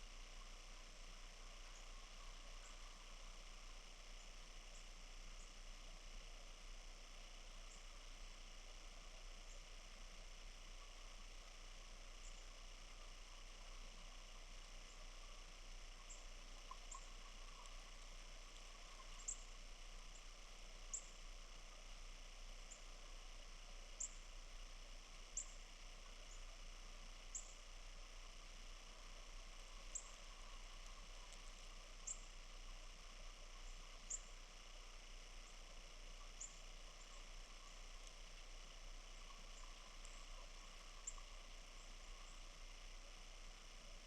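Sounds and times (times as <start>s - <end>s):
soft steady hiss: 0.0s - 44.0s
small birds chirping: 15.9s - 21.3s, 24.0s - 24.3s, 25.4s - 26.5s, 27.2s - 27.7s, 29.8s - 32.4s, 33.5s - 38.4s, 39.1s - 42.6s.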